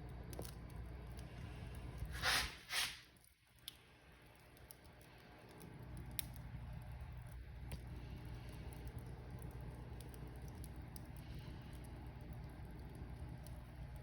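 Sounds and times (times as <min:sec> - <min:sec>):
wood fire crackling: 0:00.0 - 0:14.0
fire hissing flares: 0:01.1 - 0:03.3.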